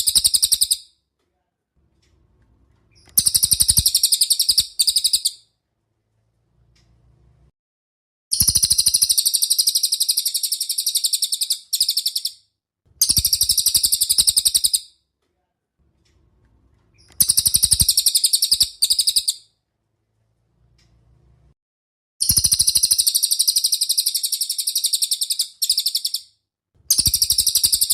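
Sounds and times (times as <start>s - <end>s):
bird rattling trills: 3.0s - 5.4s, 17.2s - 19.3s, 26.9s - 27.9s.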